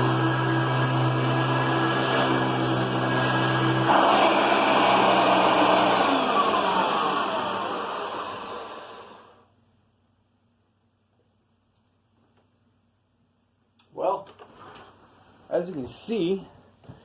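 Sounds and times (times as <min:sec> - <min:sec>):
motor winding down whine: 0:00.0 - 0:09.3
vacuum cleaner hum: 0:00.0 - 0:09.4.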